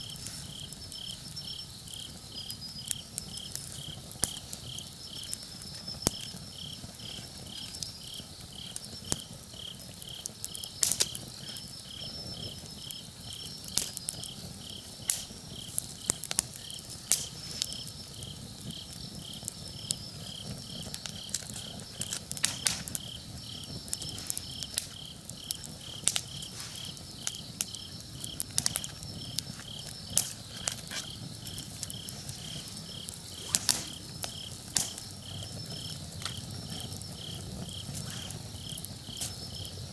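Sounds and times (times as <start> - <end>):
campfire crackling and popping: 0.0 - 39.9
insect chirping: 0.0 - 39.9.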